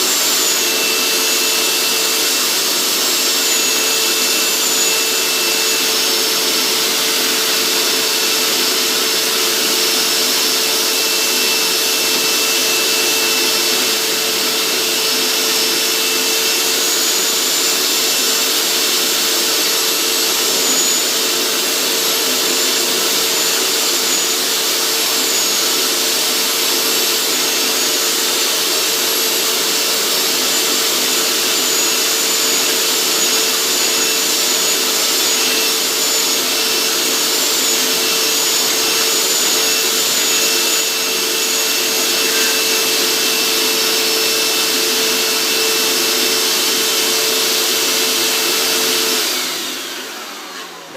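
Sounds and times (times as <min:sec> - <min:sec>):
carpet cleaner running: 0:00.0 - 0:50.9.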